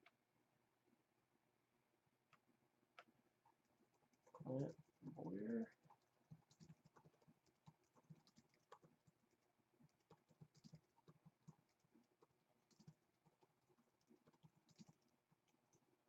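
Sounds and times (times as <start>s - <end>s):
keyboard keys tapping: 3.9s - 16.0s.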